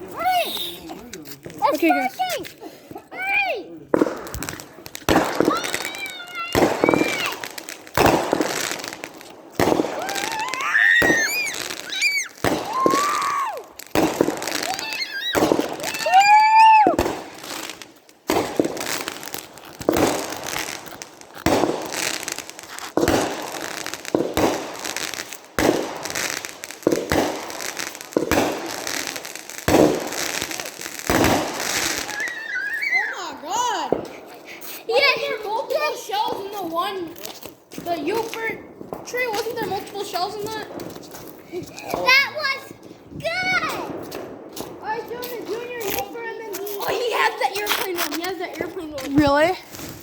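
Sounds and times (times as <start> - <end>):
firework cake firing bangs: 3.9 - 33.0.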